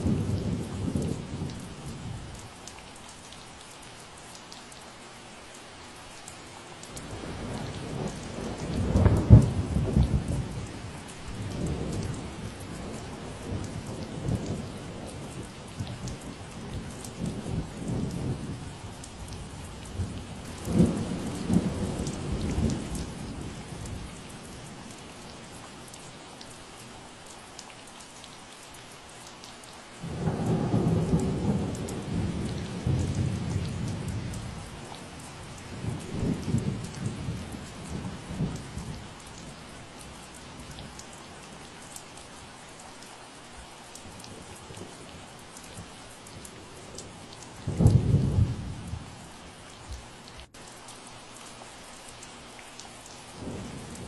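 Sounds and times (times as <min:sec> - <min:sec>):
steady rain falling: 0:00.0 - 0:54.0
thunder rumbling: 0:19.2 - 0:24.2, 0:30.0 - 0:39.2, 0:45.7 - 0:49.3, 0:53.4 - 0:54.0.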